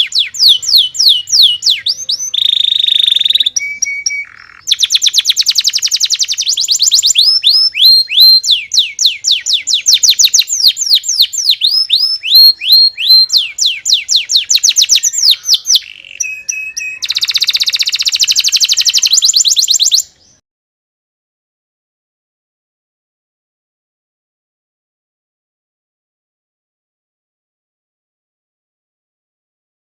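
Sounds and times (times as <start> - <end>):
canary singing: 0.0 - 20.4.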